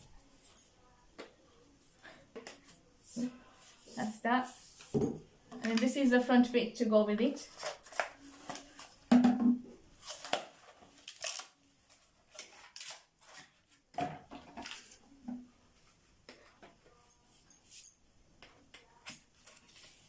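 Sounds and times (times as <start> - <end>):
packaging rustling: 10.0 - 13.6.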